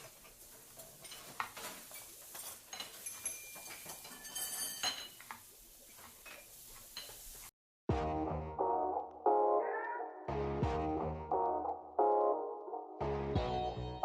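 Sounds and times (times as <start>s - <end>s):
dishes and utensils clinking: 0.0s - 7.5s
ringing clinks: 2.7s - 5.2s.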